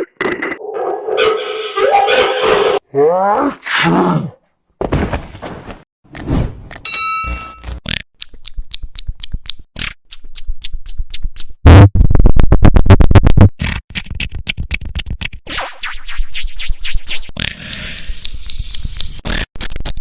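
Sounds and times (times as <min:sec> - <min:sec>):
electronic remix with stuttering clip: 0:15.5 - 0:20.0.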